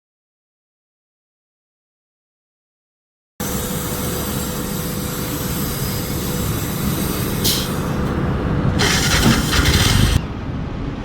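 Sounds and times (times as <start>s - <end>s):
gas hissing from nozzle: 3.4s - 8.2s, 8.8s - 10.3s
engine and traffic rumble: 3.4s - 11.0s.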